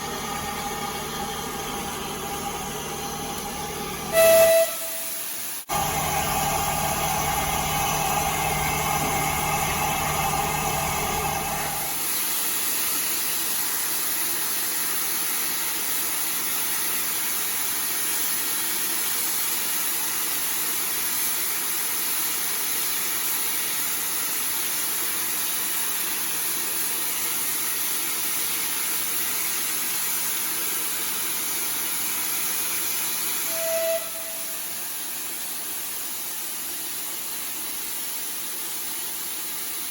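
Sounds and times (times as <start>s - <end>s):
steam locomotive whistle: 4.0s - 10.1s, 33.4s - 35.1s
brief short tone: 4.1s - 5.4s, 33.4s - 34.9s
steady hiss of steam: 11.8s - 39.9s.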